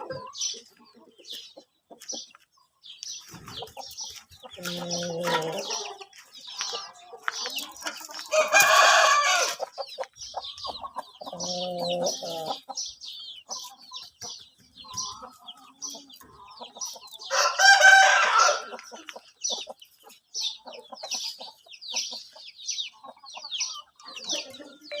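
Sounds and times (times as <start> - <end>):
rooster crowing: 17.3 - 18.7.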